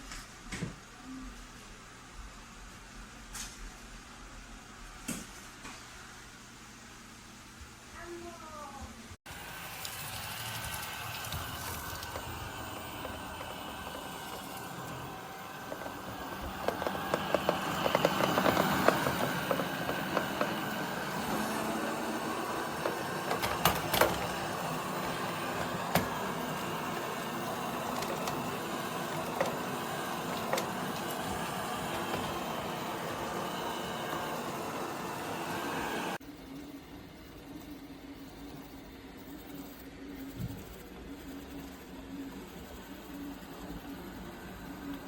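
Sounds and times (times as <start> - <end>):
robot vacuum motor and brush hum: 9.3 - 36.2.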